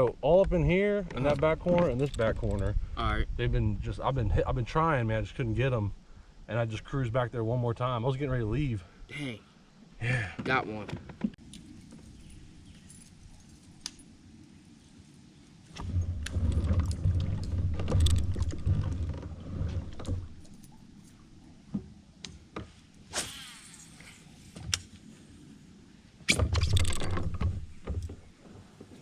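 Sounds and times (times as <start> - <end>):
gear knocking and clicking in kayak: 15.8 - 20.8, 26.6 - 29.0
short swish: 23.1 - 24.1.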